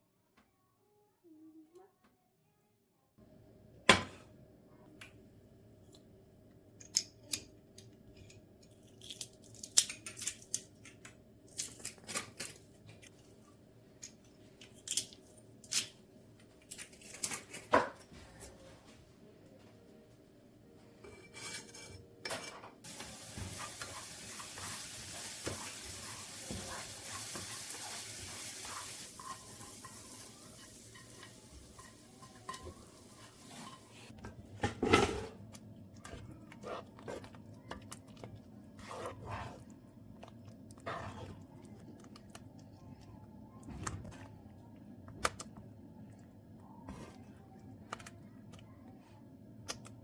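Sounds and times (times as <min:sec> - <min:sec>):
food sizzling in a pan: 0:22.8 - 0:34.1
dishes clattering: 0:34.5 - 0:35.4.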